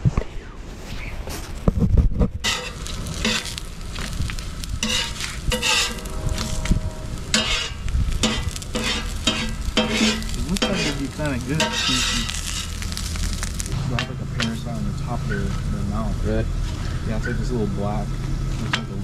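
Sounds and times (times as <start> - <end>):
spatula scraping a pan: 2.4 - 4.1, 4.7 - 12.9
food sizzling in a pan: 2.5 - 13.8.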